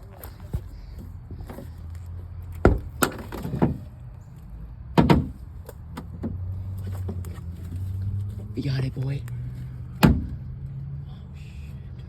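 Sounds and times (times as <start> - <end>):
car door knocking and banging: 2.6 - 3.8, 5.0 - 6.4, 10.0 - 10.4.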